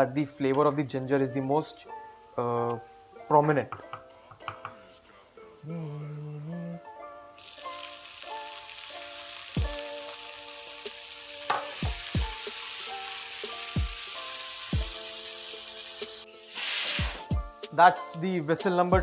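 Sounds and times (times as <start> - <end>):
sizzling in a frying pan: 7.4 - 17.5
pressure cooker whistle: 16.4 - 17.3.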